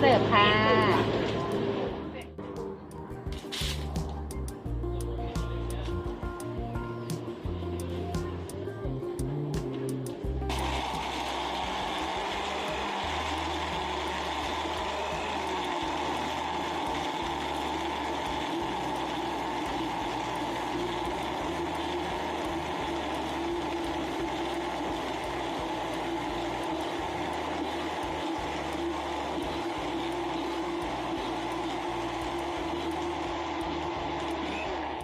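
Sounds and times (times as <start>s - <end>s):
electric blender running: 0.0s - 2.2s, 10.1s - 35.0s.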